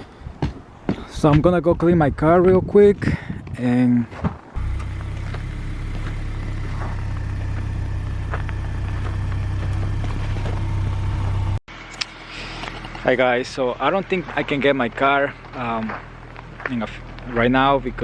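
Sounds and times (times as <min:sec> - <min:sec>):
car engine idling: 0:04.6 - 0:18.0.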